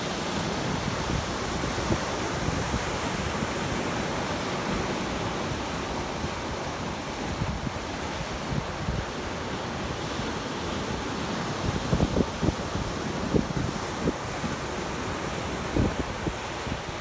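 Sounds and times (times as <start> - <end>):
wind buffeting microphone: 11.5 - 17.0.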